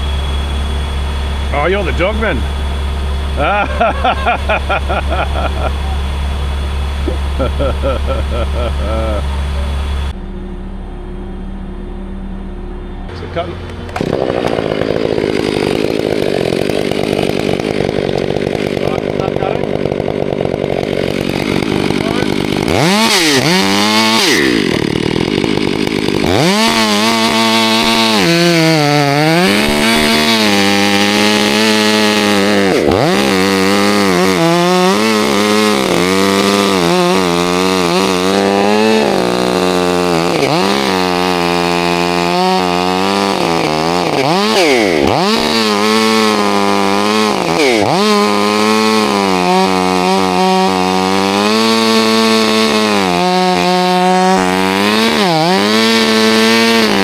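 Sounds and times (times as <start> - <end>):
chainsaw cutting wood: 0.0 - 10.2, 13.7 - 57.0.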